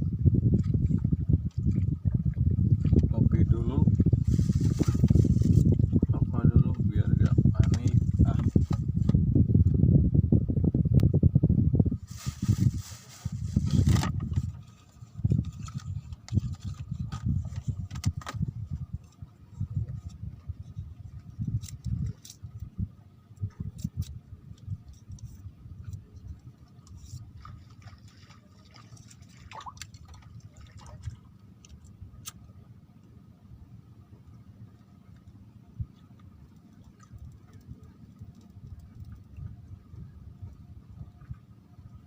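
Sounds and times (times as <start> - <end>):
water sloshing and splashing: 0.5 - 8.8, 24.9 - 32.0, 36.0 - 39.6.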